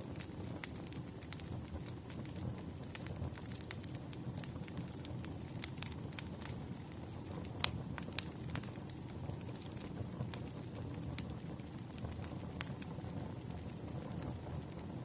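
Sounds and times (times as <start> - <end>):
low rumble of burning logs: 0.0 - 15.0
wood fire crackling: 0.0 - 15.0.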